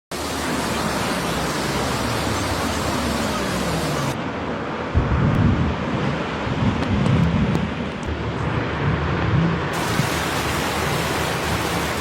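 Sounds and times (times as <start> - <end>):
steady rushing noise: 0.1 - 12.0
wind buffeting microphone: 4.8 - 12.0.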